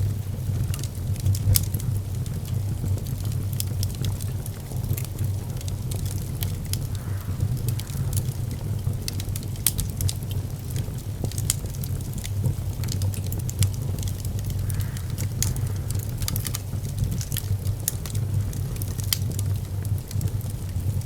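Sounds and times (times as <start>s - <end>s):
fire popping and crackling: 0.0s - 21.0s
low rumble of flame: 0.0s - 21.0s.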